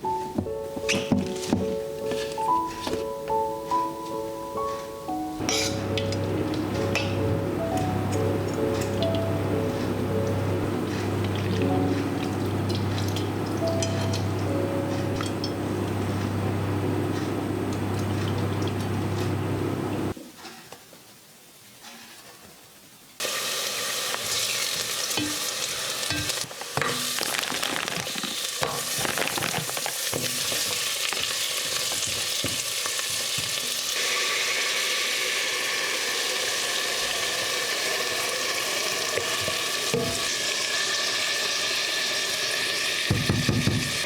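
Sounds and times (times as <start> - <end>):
utensil knocking against pan: 5.4 - 7.3, 43.1 - 44.0
food sizzling in a frying pan: 23.2 - 44.0.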